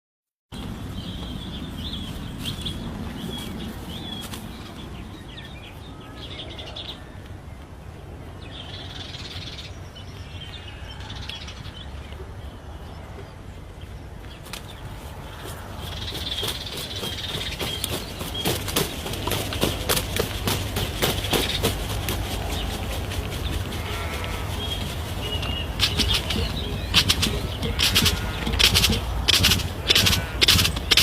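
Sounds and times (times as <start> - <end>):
steady low rumble: 0.6 - 31.0
bird rapid high chirps: 15.8 - 31.0.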